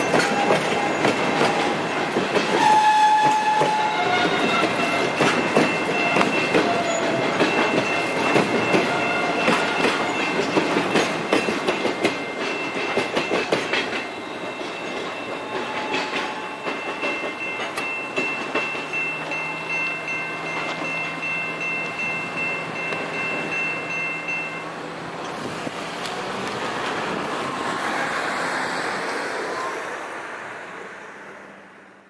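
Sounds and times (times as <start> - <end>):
wheel clatter over rail joints: 0.0 - 27.9
high-pitched wheel squeal: 2.6 - 5.1.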